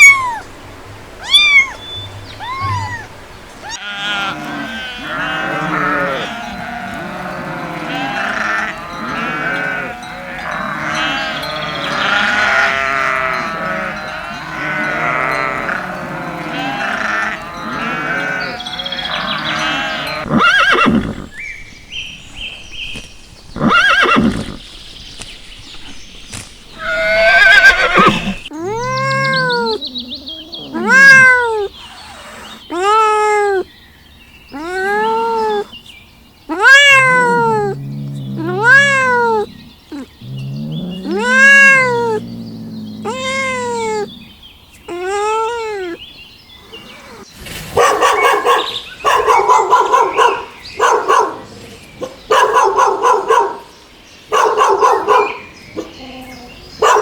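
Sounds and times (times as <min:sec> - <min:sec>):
cat meowing: 0:00.0 - 0:00.6, 0:01.2 - 0:06.7, 0:26.8 - 0:33.7, 0:34.5 - 0:35.8, 0:36.5 - 0:44.2, 0:44.9 - 0:46.0
sheep bleating: 0:01.2 - 0:21.1, 0:26.8 - 0:29.8, 0:36.5 - 0:44.2.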